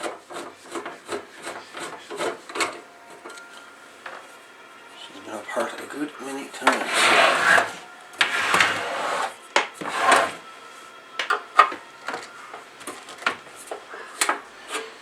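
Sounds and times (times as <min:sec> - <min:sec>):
radio cover scraping: 0:06.8 - 0:10.4.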